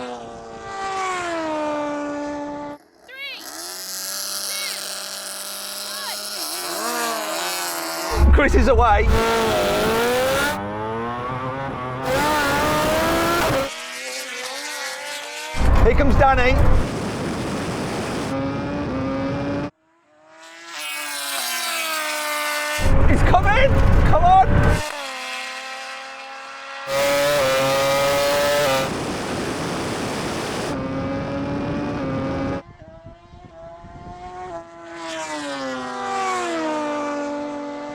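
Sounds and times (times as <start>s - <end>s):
racing motorcycle engine accelerating: 0.0s - 37.9s
rushing wind and road noise: 8.1s - 10.7s, 11.8s - 13.7s, 15.6s - 19.7s, 22.8s - 24.9s, 26.9s - 34.5s.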